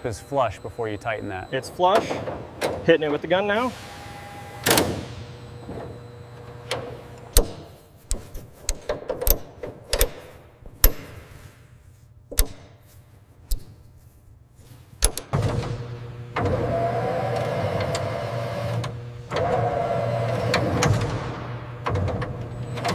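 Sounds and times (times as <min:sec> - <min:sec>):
pneumatic impact gun burst: 0:03.6 - 0:05.4
metallic clicks and knocks: 0:07.3 - 0:11.3, 0:12.3 - 0:12.8, 0:13.4 - 0:13.8, 0:15.0 - 0:15.4.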